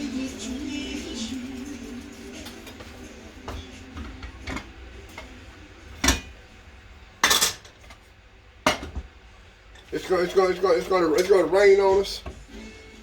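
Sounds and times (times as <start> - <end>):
utensils clinking against pots: 2.1 - 6.5, 7.2 - 8.0, 8.6 - 9.1, 9.7 - 12.4.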